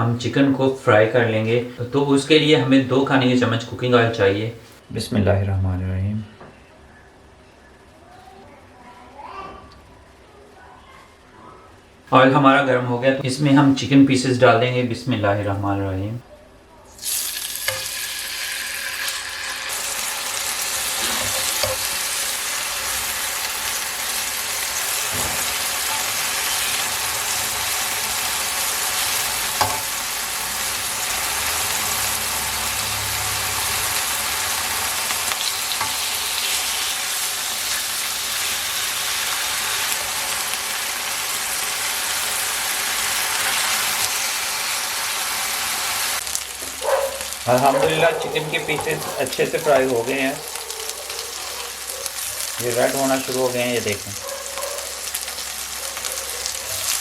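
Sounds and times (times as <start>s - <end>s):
chicken sizzling in hot oil: 16.9s - 57.0s.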